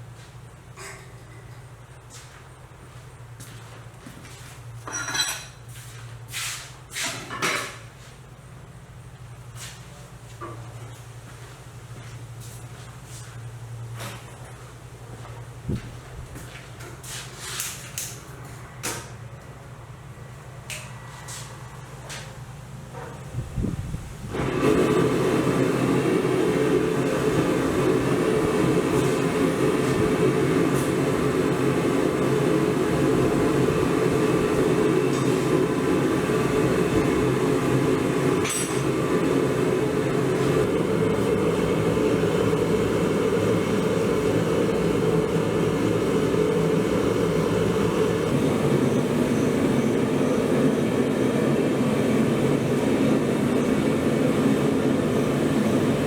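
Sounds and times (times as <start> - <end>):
machinery droning: 18.0 - 56.0.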